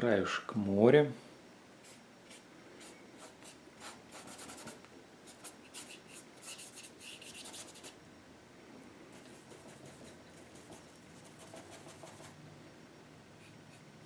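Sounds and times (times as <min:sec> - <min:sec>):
paintbrush scratching on canvas: 0:01.8 - 0:08.0, 0:09.2 - 0:12.4.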